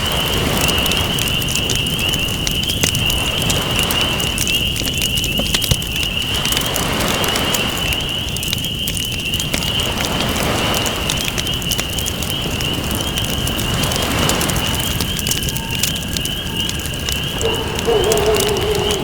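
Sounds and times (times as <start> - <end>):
campfire crackling and popping: 0.0 - 19.0
ocean waves: 6.2 - 8.6, 9.5 - 19.0.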